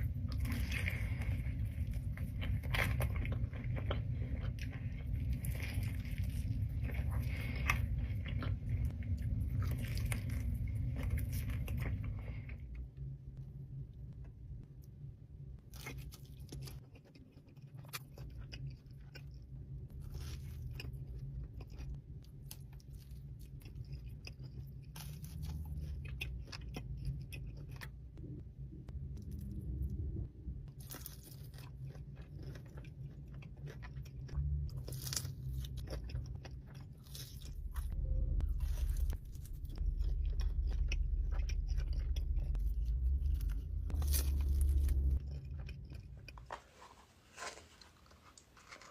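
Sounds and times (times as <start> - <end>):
person chewing pizza: 0.0 - 13.1, 15.6 - 30.0, 30.6 - 48.9
crisp crust crunches: 30.7 - 48.9.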